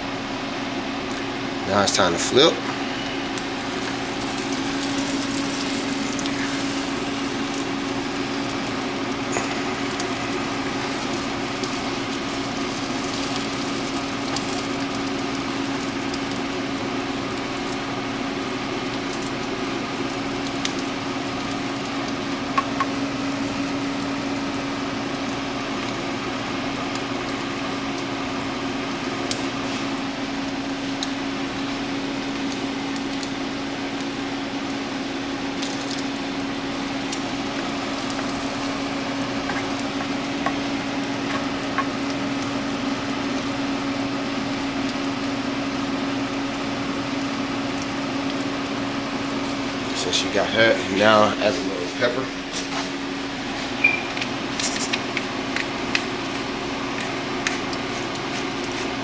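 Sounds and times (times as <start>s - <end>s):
steady low hum: 0.0s - 25.6s
omelet sizzling in frying pan: 0.0s - 59.0s.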